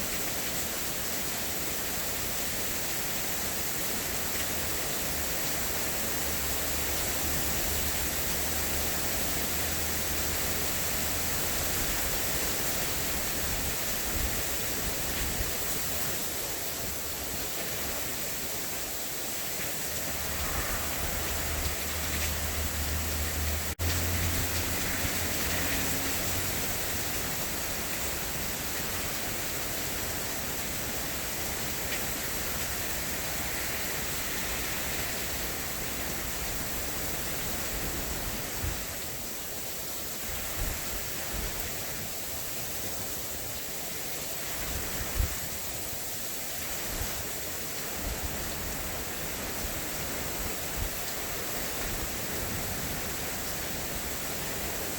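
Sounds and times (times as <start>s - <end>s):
heavy rain: 0.0s - 54.9s
low rumble: 19.8s - 26.6s.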